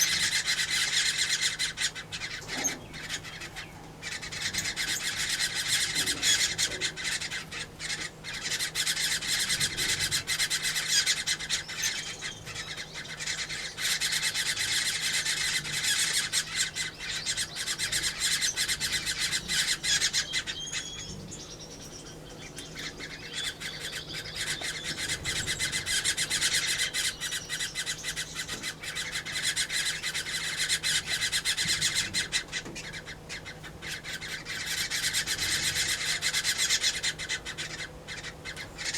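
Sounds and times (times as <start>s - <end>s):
small birds chattering: 0.0s - 38.9s.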